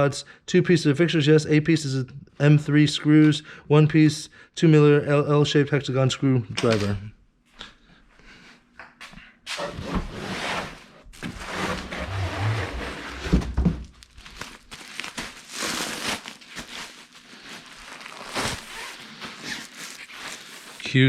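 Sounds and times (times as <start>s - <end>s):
packaging rustling and crinkling: 11.1s - 21.0s.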